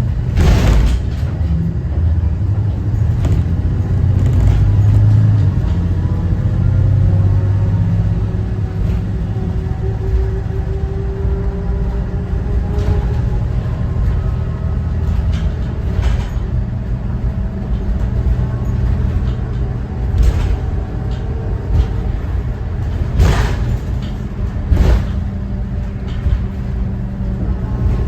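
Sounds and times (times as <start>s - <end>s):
bus engine rumble: 0.0s - 28.0s
rattling knocks: 15.0s - 28.0s.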